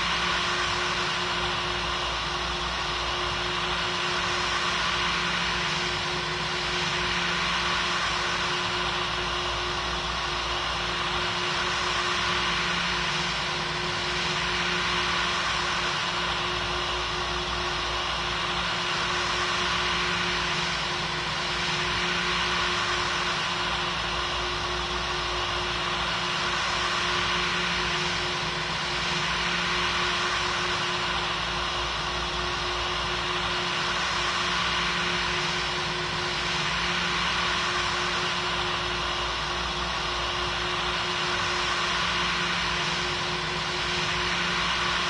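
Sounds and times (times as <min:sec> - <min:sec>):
aircraft cabin engine rush: 0:00.0 - 0:45.0.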